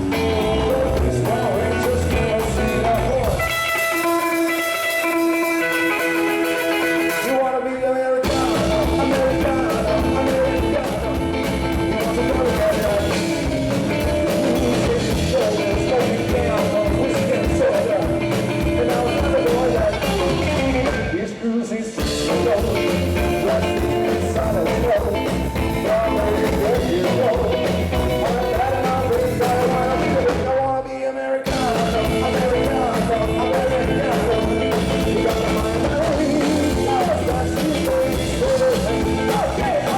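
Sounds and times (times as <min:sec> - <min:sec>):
rock band playing: 0:00.0 - 0:07.4, 0:08.2 - 0:21.2, 0:22.0 - 0:30.7, 0:31.5 - 0:39.9
electric guitar: 0:00.0 - 0:39.9
person singing: 0:00.0 - 0:39.9.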